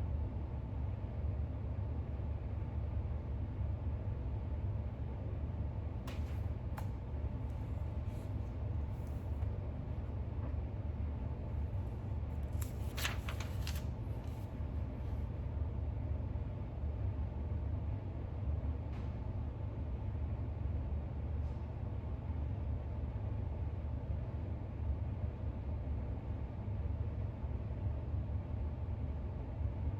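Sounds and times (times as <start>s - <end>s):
low room hum: 0.0s - 29.9s
book pages rustling: 6.1s - 9.4s, 12.3s - 14.6s.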